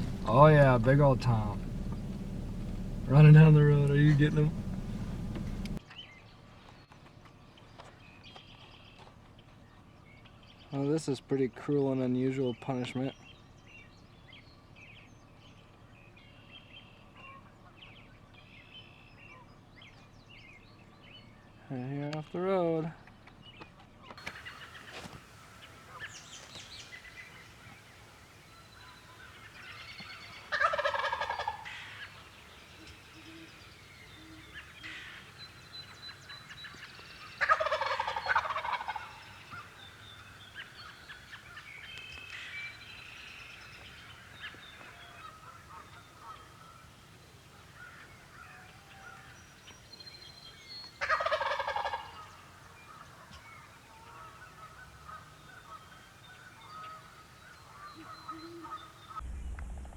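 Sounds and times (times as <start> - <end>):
turkey gobbling: 0.0 - 5.8, 24.2 - 49.4, 50.9 - 59.2
faint songbird chirps: 0.0 - 6.2, 23.4 - 59.2.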